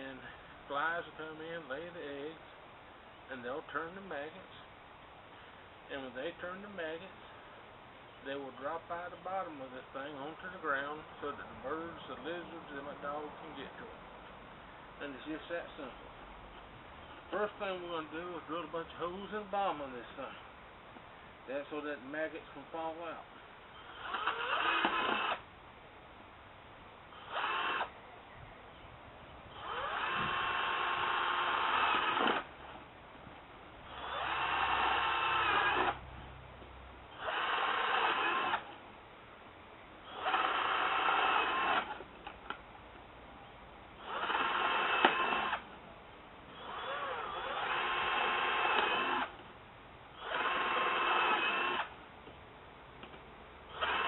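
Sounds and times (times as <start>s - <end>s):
power drill boring through metal can: 24.0s - 25.4s, 29.6s - 32.5s, 40.1s - 41.9s, 44.0s - 45.6s, 46.6s - 49.3s, 50.2s - 51.9s.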